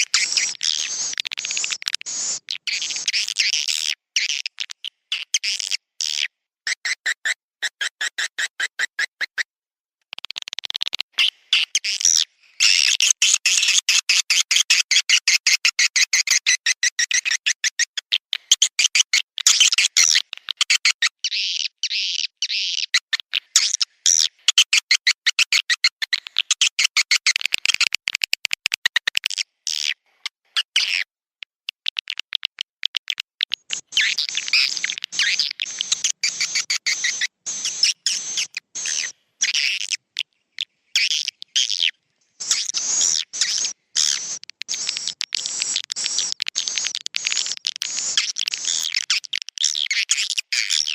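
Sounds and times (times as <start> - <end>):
swiftlet chirps and clicks: 31.7 - 40.3, 42.4 - 50.4.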